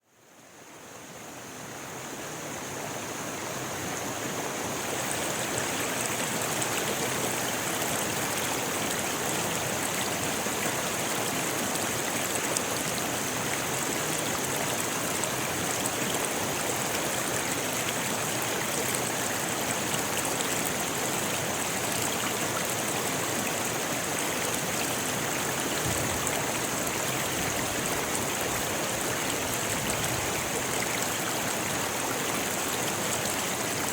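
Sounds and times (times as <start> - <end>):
river rushing over stones: 2.3 - 33.9.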